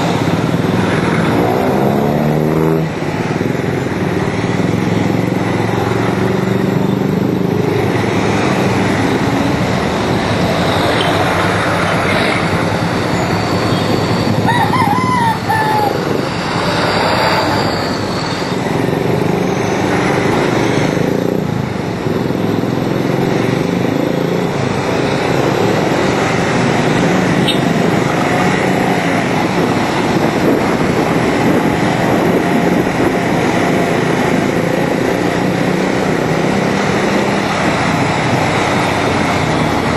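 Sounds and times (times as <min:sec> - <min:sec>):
wind and road noise: 0:00.0 - 0:39.9
motorcycle engine running: 0:20.9 - 0:39.9.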